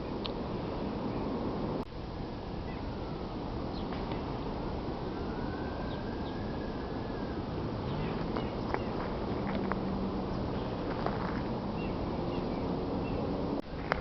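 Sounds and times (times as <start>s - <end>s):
outdoor background noise: 0.0s - 14.0s
distant siren wailing: 1.7s - 10.9s.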